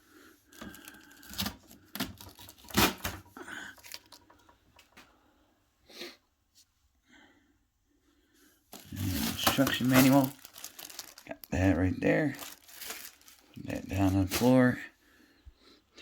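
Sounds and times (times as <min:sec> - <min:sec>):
packaging rustling: 0:00.5 - 0:04.5, 0:08.7 - 0:14.8
plastic parts knocking and scraping: 0:00.6 - 0:05.0.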